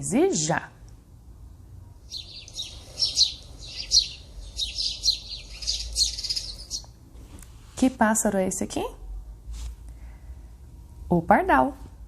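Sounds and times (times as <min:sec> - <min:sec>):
sparrow chirping: 0:02.0 - 0:07.0.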